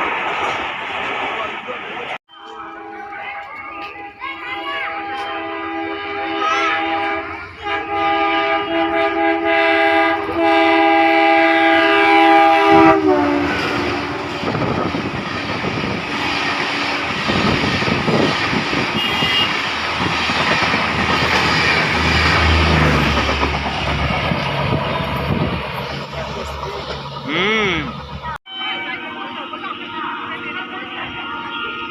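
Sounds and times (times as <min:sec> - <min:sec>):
train coaches rattling over rails: 0:00.0 - 0:31.9
train horn blast: 0:02.3 - 0:15.1, 0:15.7 - 0:17.6, 0:18.8 - 0:19.7.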